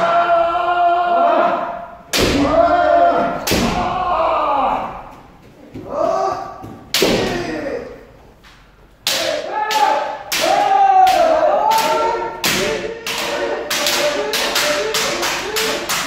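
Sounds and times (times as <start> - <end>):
loud pitched shouts: 0.0 - 5.2, 9.1 - 16.0
bamboo swords striking armour: 3.4 - 4.0, 6.9 - 7.5.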